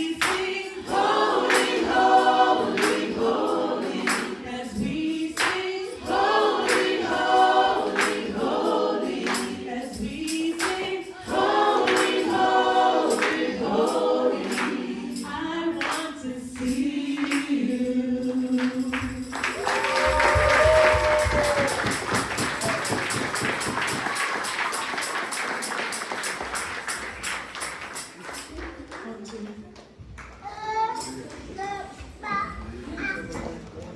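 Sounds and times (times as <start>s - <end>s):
choir singing in harmony: 0.0s - 23.5s
audience applause: 19.3s - 29.2s.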